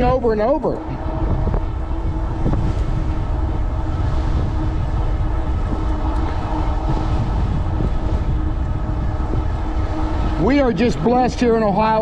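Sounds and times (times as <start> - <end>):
faint steady whine: 0.0 - 12.0
wind buffeting microphone: 0.0 - 12.0.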